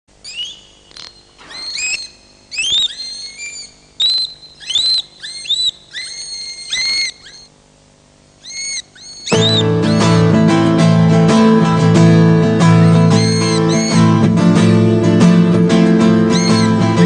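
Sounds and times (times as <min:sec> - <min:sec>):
seagull cries: 0:01.4 - 0:07.5, 0:08.4 - 0:10.0, 0:12.7 - 0:14.2, 0:16.3 - 0:17.0.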